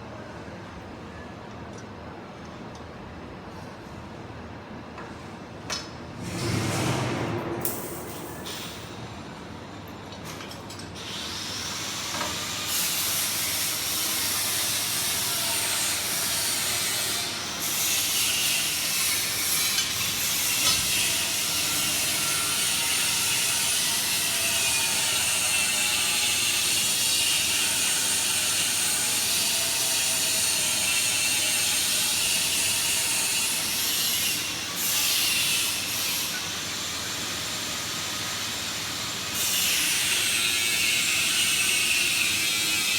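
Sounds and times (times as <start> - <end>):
machine hissing and clattering: 6.2 - 9.2.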